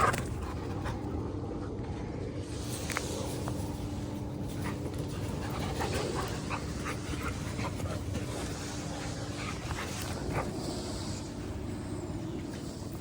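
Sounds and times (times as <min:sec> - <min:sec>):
steady low rumble: 0:00.0 - 0:13.0
large dog panting: 0:04.3 - 0:13.0.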